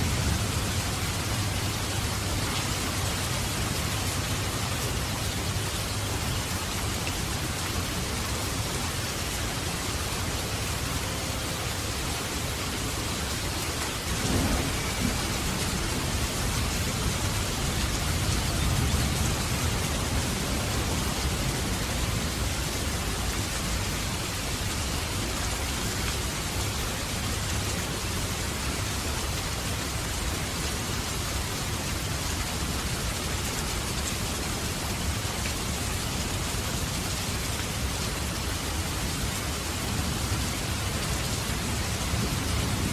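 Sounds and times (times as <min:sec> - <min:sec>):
steady rain-like hiss: 0:00.0 - 0:42.9.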